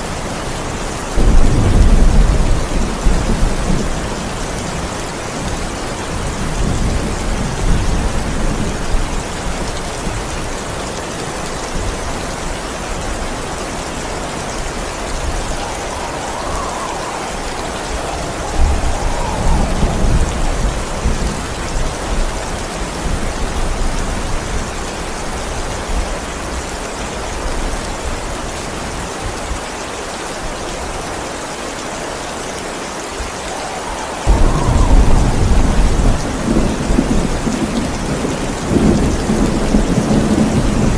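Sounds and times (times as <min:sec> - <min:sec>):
heavy rain: 0:00.0 - 0:40.9
thunder rumbling: 0:01.1 - 0:12.2, 0:12.9 - 0:24.8, 0:33.1 - 0:40.9
loud thunderclap: 0:01.2 - 0:04.0, 0:15.2 - 0:22.3, 0:34.2 - 0:40.9.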